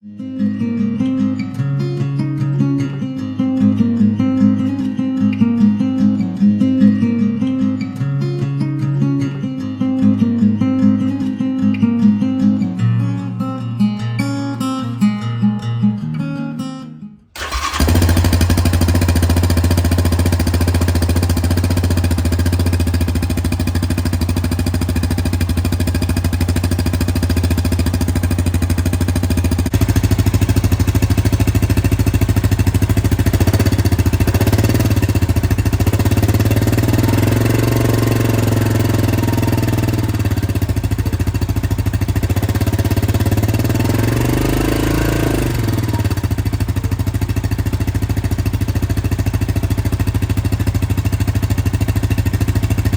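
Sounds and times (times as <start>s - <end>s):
engine idling rumble: 17.4s - 43.4s, 45.4s - 52.9s.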